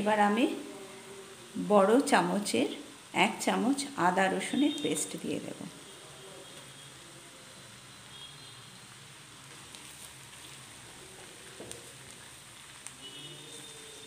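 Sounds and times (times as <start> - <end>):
paste sizzling in hot oil: 0.2 - 14.0
wooden spoon stirring: 9.5 - 14.0.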